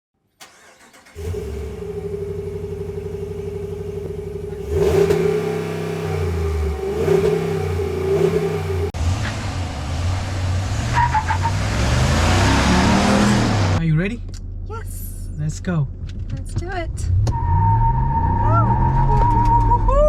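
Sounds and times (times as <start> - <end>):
pickup truck engine idling and revving: 0.4 - 14.6.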